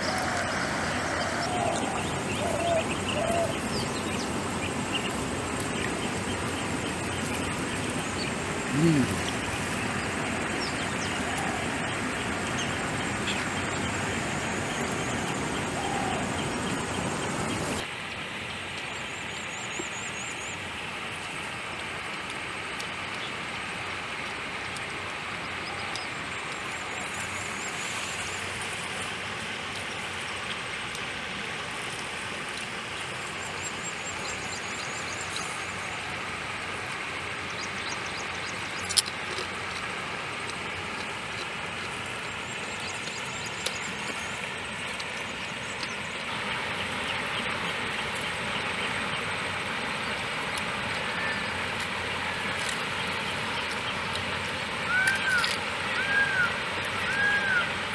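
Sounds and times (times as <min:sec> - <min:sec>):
outdoor background noise: 0:00.0 - 0:57.9
high chirping trills: 0:00.5 - 0:17.8.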